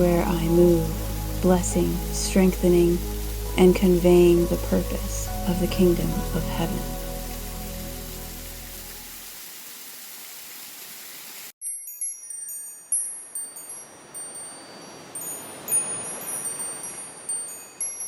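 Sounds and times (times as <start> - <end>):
steady hiss: 0.0 - 11.6
wind chimes ringing: 11.6 - 18.0.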